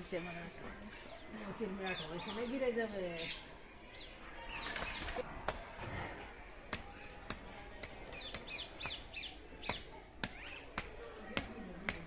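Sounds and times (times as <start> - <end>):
small birds chirping: 0.8 - 5.2, 6.8 - 12.0.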